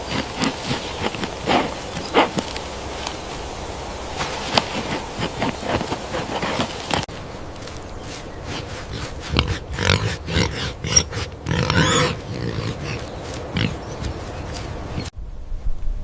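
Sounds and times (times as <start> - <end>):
pig grunting: 0.0 - 2.4, 8.4 - 15.1.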